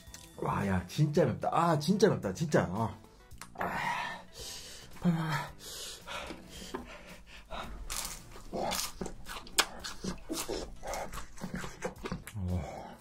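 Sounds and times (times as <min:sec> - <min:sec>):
crunchy bites and chewing: 0:07.6 - 0:12.8.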